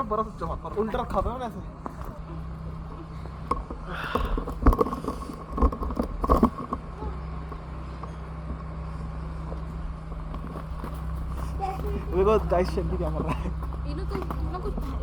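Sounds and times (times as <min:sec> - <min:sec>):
car engine idling: 0:00.0 - 0:15.0
sharp knocks and clicks: 0:03.4 - 0:06.8.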